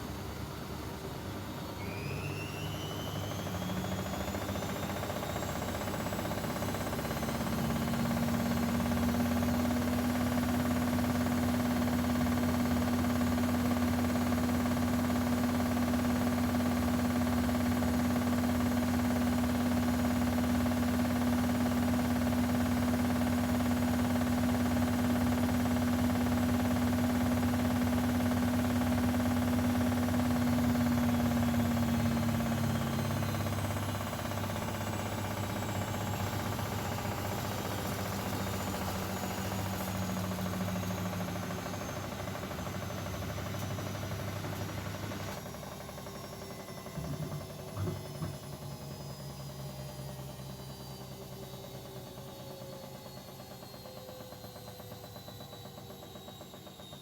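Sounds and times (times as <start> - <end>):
washing machine drum spinning: 17.8 - 49.0.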